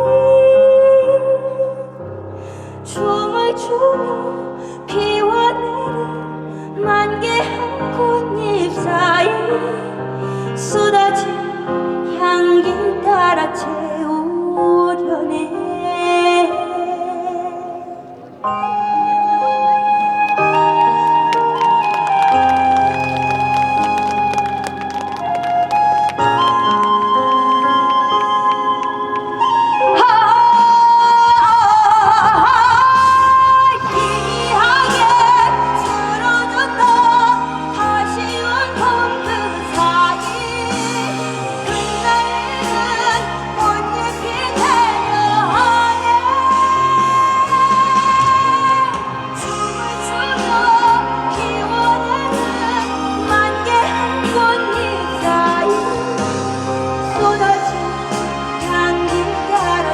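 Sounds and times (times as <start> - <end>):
woman singing a slow ballad: 2.8 - 22.6, 27.5 - 59.9
instrumental accompaniment: 16.6 - 30.8.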